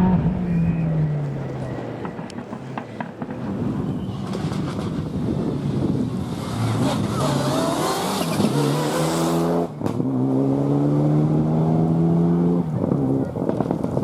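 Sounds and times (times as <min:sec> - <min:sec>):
rally car engine accelerating: 0:05.8 - 0:14.0.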